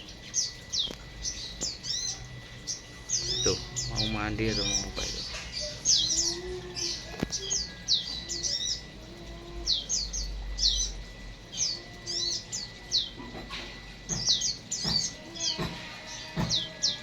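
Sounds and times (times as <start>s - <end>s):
small birds chirping: 0.0s - 17.0s
sharp knocks: 14.1s - 16.7s.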